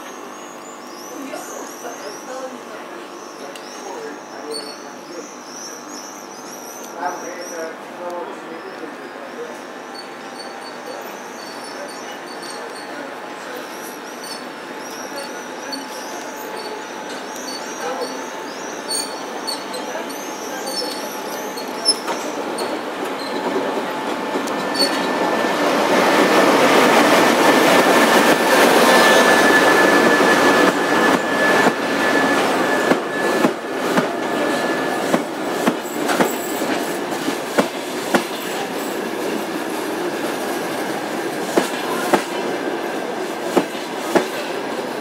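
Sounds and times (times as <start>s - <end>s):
diesel locomotive rumble: 7.7s - 45.0s
braking wheels squealing: 9.8s - 13.0s, 13.6s - 23.8s, 24.4s - 37.1s
train wheels clacking on rail joints: 18.9s - 39.5s, 43.4s - 44.5s.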